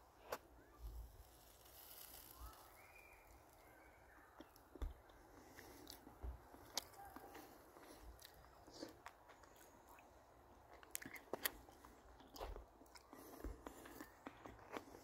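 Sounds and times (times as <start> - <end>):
person chewing and biting food: 4.4 - 15.0.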